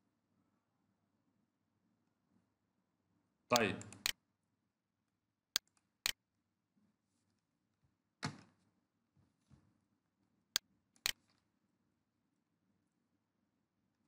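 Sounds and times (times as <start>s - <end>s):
computer mouse clicks: 3.5s - 4.2s, 5.5s - 6.2s, 10.6s - 11.4s.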